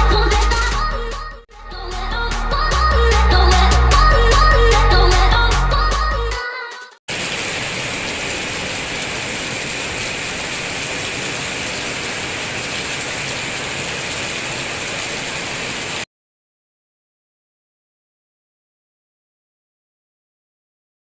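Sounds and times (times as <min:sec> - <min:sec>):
steady rain hiss: 0:07.1 - 0:16.1.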